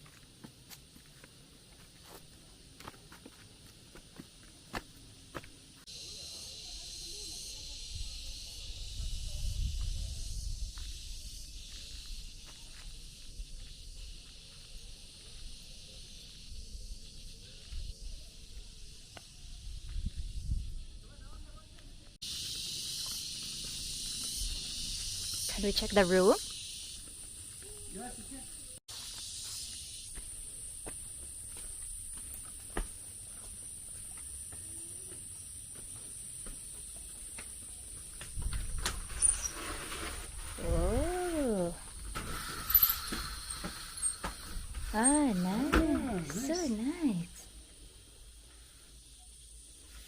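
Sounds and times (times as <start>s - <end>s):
insect chorus hissing: 0.0s - 50.0s
wind rumble on microphone: 7.9s - 11.6s, 19.4s - 21.1s.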